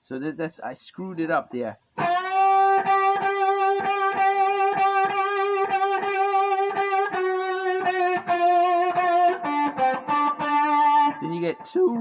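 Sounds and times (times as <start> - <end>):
overdriven electric guitar note: 2.0 - 12.0.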